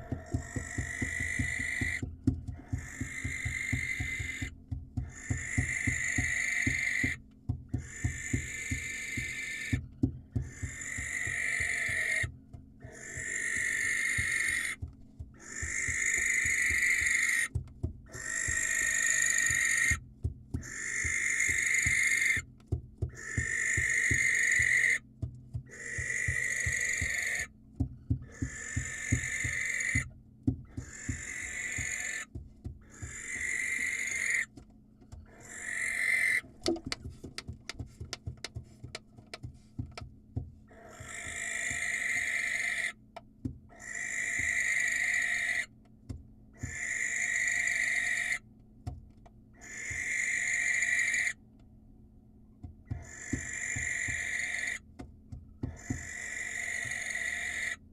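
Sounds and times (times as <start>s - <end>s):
barn owl screeching: 0.0s - 9.8s, 10.4s - 22.5s, 23.1s - 25.0s, 25.7s - 27.5s, 28.2s - 30.1s, 30.7s - 34.6s, 35.2s - 36.5s, 40.7s - 43.0s, 43.7s - 45.7s, 46.6s - 48.4s, 49.6s - 51.4s, 52.9s - 54.9s, 55.6s - 57.9s
rapid clicks and taps: 0.0s - 42.2s, 52.6s - 57.2s.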